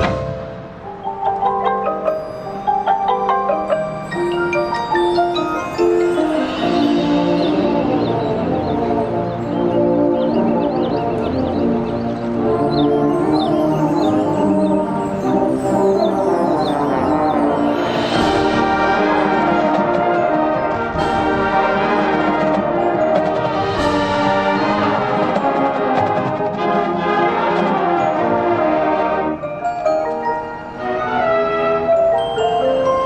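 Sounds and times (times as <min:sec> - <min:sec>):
marching band brass chords: 0:00.0 - 0:01.2, 0:02.6 - 0:29.5
sharp percussion strikes: 0:00.0 - 0:10.2, 0:12.6 - 0:26.4.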